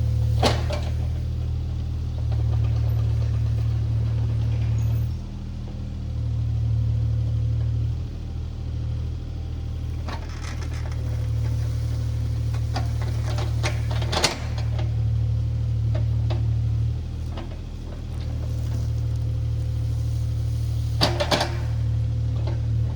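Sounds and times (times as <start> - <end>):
diesel engine running: 0.0 - 22.9
clanks and rattles: 0.3 - 1.3, 9.8 - 22.9.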